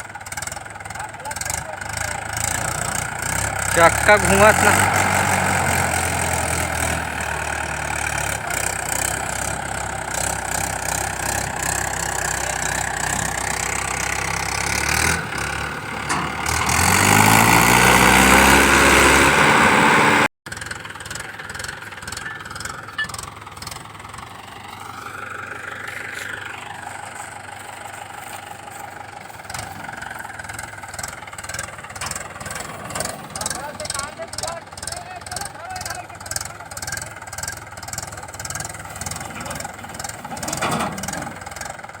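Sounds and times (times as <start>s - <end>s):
tractor engine revving: 0.0s - 42.0s.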